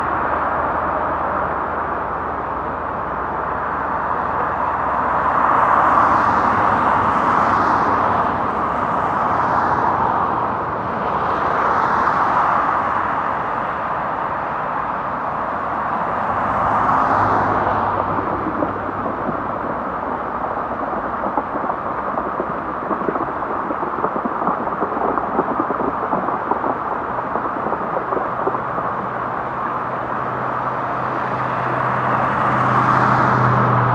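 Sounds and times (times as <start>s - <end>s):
steady rain: 0.0s - 33.9s
vehicles swishing past on wet road: 0.0s - 33.9s
patter of raindrops: 15.3s - 33.9s.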